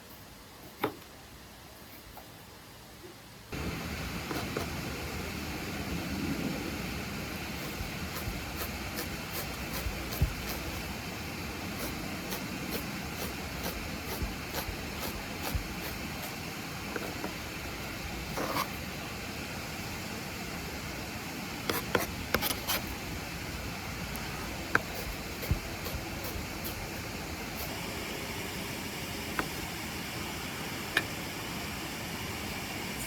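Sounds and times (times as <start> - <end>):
knife chopping on cutting board: 7.7 - 10.8.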